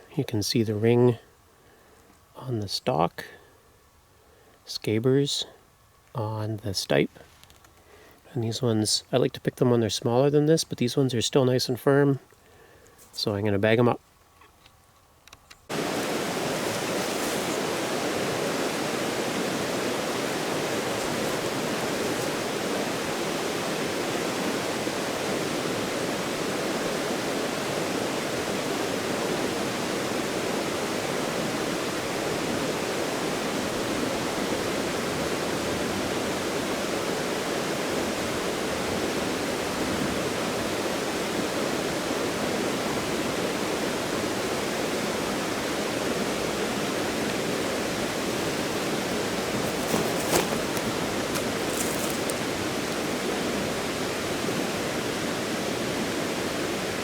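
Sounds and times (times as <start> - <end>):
fast-flowing stream rushing: 15.7 - 57.0.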